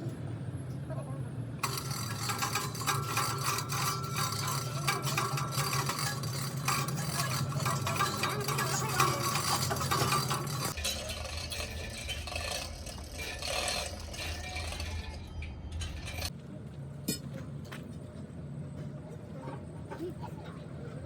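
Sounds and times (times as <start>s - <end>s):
low machine hum: 0.0s - 16.8s
metal rattling and scraping: 1.6s - 16.3s.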